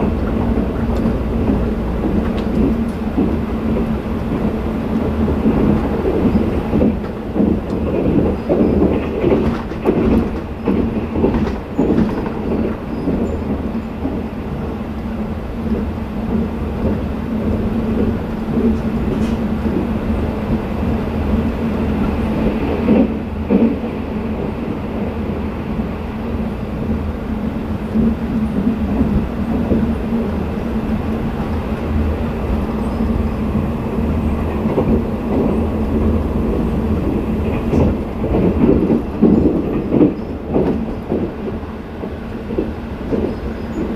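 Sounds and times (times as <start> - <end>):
train wheels rumbling on rail: 0.0 - 43.9
clicks over rail joints: 0.2 - 14.2.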